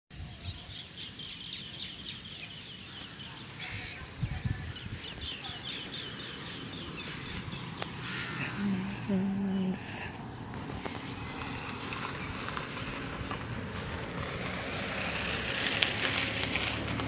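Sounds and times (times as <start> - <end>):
birds chirping: 0.1 - 13.9
wind on microphone: 3.6 - 5.6.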